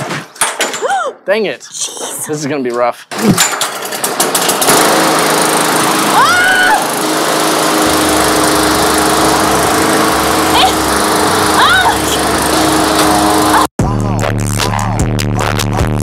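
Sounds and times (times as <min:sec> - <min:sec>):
lawn mower engine running: 0:03.1 - 0:13.7.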